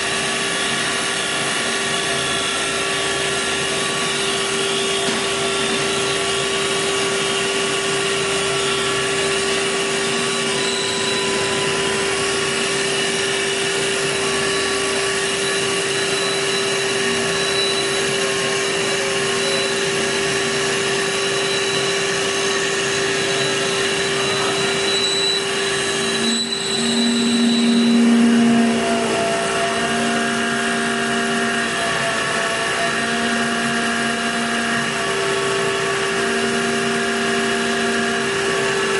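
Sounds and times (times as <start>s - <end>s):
wood lathe whine: 0.0s - 38.9s.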